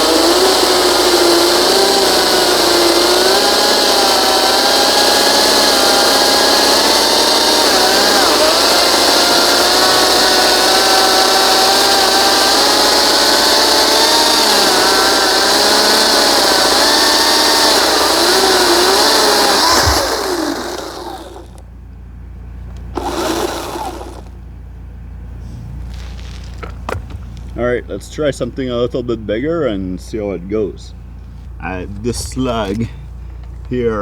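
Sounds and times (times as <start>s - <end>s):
chainsaw cutting log: 0.0s - 21.7s, 22.8s - 24.4s
rustling: 25.4s - 27.6s.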